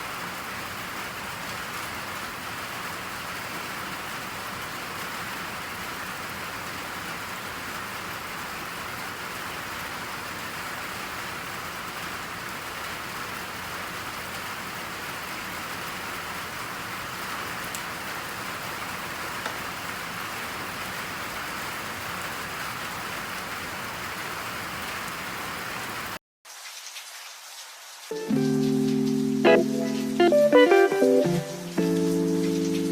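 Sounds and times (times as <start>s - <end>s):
steady rain falling: 0.0s - 32.9s
faint hiss: 28.0s - 32.9s.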